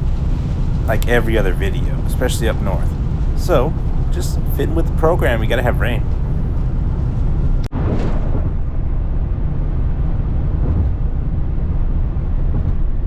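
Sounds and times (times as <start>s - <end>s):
road noise: 0.0s - 7.7s
wind buffeting microphone: 0.0s - 13.0s.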